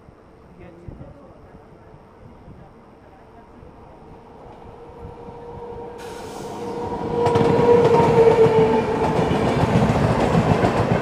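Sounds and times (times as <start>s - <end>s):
train rumbling and clacking past: 3.9s - 11.0s.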